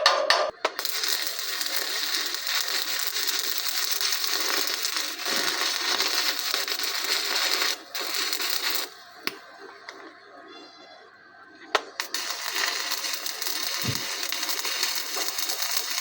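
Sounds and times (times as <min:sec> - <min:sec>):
electric arc welder crackling: 0:00.6 - 0:10.0, 0:11.8 - 0:16.0.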